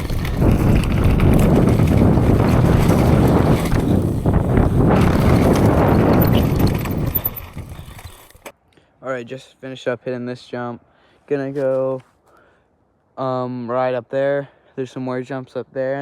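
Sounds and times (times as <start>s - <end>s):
wind rushing over microphone: 0.0s - 8.2s
bike tyres on dirt: 0.0s - 8.5s.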